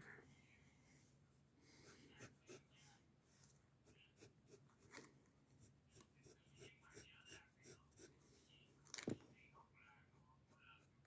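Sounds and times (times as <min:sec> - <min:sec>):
pencil scratching on paper: 0:01.8 - 0:03.0, 0:03.8 - 0:08.3.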